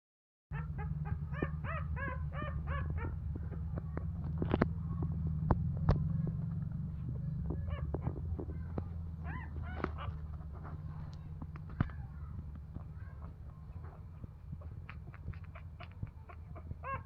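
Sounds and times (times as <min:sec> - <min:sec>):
steady low hum: 0:00.5 - 0:17.0
puppies squealing: 0:00.6 - 0:03.2, 0:07.6 - 0:12.1, 0:12.9 - 0:17.0
scattered clicks: 0:03.0 - 0:06.7, 0:09.6 - 0:16.6.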